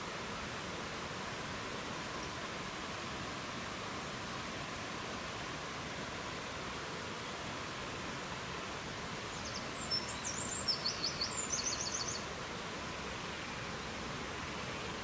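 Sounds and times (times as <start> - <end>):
songbird chirping with trill: 9.4 - 12.3.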